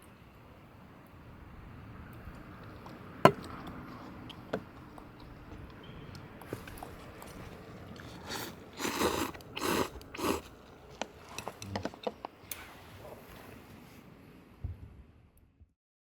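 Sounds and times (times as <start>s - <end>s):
person slurping noodles: 6.5s - 12.9s.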